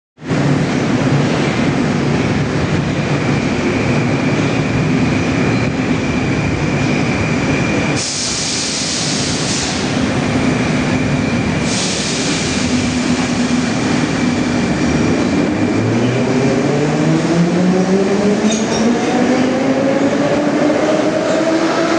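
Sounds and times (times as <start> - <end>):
long air hisses: 7.9 - 10.2, 11.6 - 14.1.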